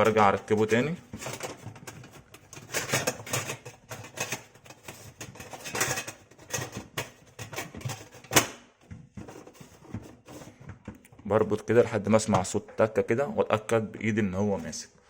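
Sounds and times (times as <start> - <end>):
plastic filter clicking and clattering: 0.0 - 11.4.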